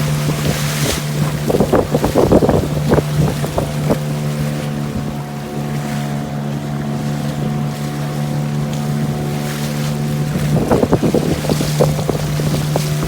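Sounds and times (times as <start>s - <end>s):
boat engine running: 0.0s - 13.0s
wind buffeting microphone: 0.0s - 13.0s.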